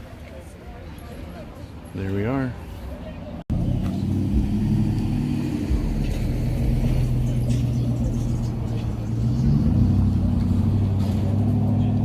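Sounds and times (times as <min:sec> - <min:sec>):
car engine idling: 0:03.5 - 0:12.0.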